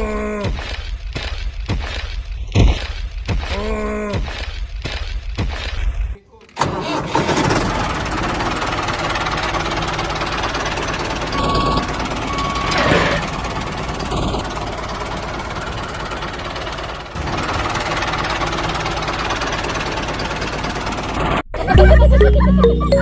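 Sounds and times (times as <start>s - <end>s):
small engine chugging: 6.6s - 21.5s.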